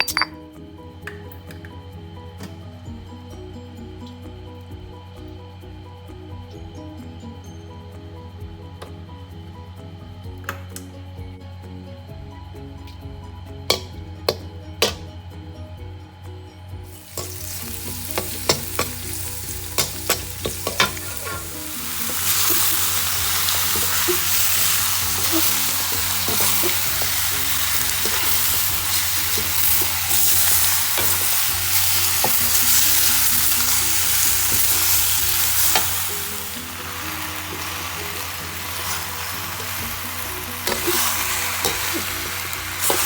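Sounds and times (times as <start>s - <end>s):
food sizzling in a pan: 16.9s - 43.0s
stirring in a pan: 17.0s - 36.6s.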